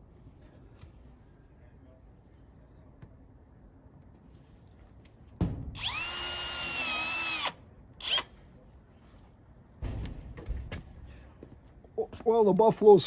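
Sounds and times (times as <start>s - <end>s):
power drill whine: 5.8s - 8.3s.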